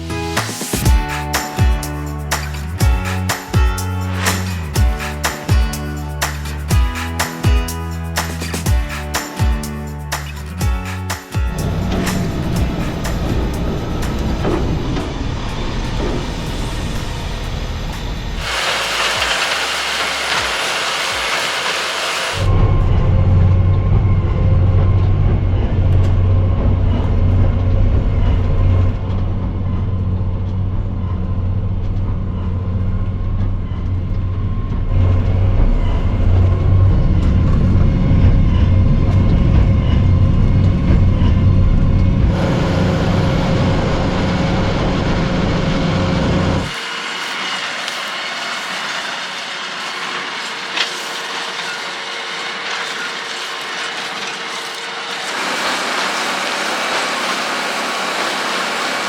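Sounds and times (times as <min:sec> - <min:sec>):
tractor and baler drone: 0:00.0 - 0:59.0
distant machine hiss: 0:00.4 - 0:22.5.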